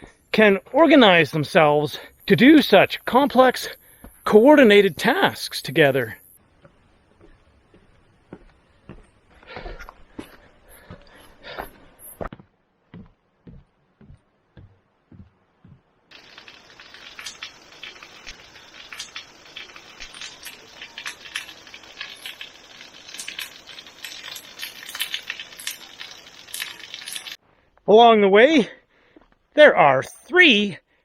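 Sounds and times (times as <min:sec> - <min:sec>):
footsteps on a trail: 0:06.4 - 0:27.9, 0:29.0 - 0:29.4
crackling and pattering: 0:13.5 - 0:27.4
sharp clicks: 0:16.1 - 0:27.4.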